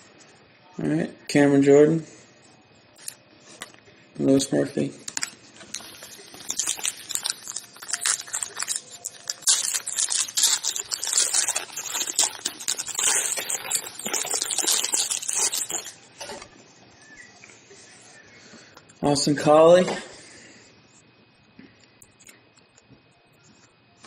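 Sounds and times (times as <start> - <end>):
trading cards rustling: 5.1 - 16.0.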